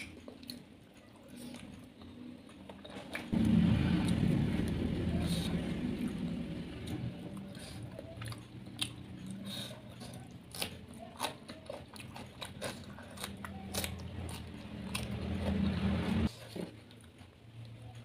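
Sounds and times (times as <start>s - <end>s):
chewing: 0.0s - 3.4s, 5.3s - 18.0s.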